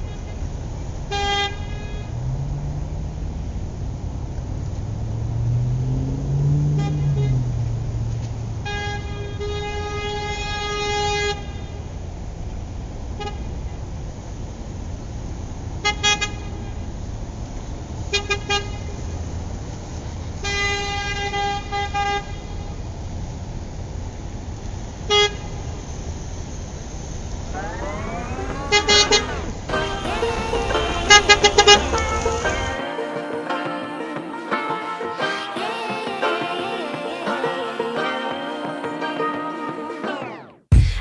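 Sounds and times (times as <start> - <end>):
traffic engine rumble: 0.0 - 32.9
car horns honking: 6.7 - 7.6, 8.6 - 11.8, 27.6 - 36.4.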